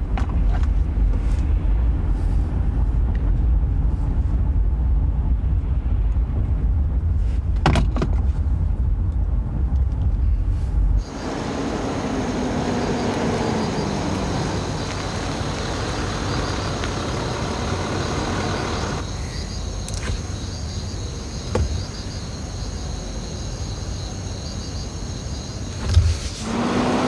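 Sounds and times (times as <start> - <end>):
vehicle engine and tyre hum: 0.0 - 27.0
crickets chirping: 11.0 - 27.0.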